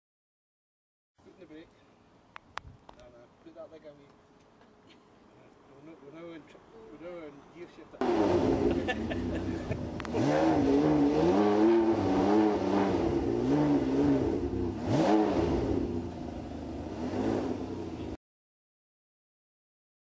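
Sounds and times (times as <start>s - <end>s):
car engine revving: 8.0s - 18.2s.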